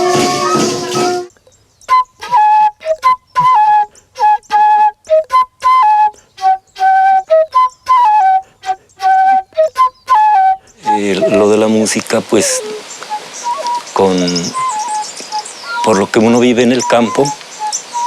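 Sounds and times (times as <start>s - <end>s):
flute melody: 0.0s - 1.3s, 1.9s - 18.0s.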